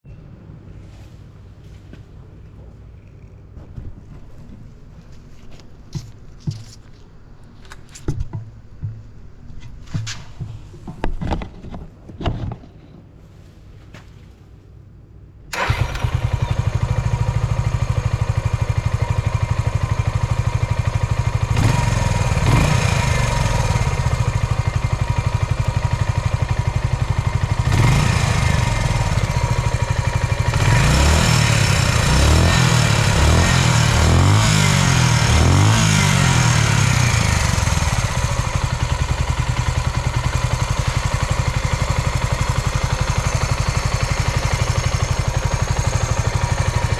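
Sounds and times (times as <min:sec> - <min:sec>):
motorcycle engine starting and revving: 0:15.5 - 0:46.9.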